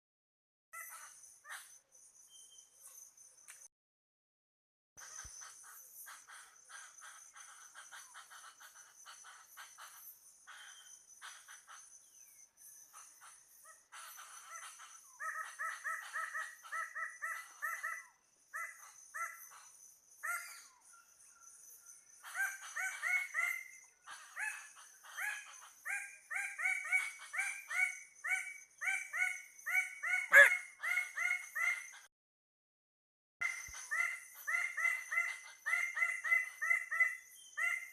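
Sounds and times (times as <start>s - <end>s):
birds harsh honking calls: 30.1s - 31.0s.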